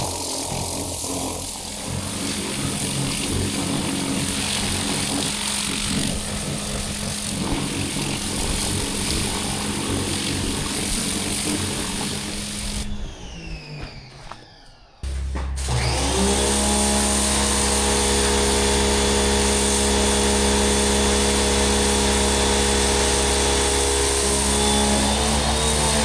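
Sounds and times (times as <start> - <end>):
water jet spraying: 0.0 - 14.2
pressure washer motor humming: 0.0 - 26.0.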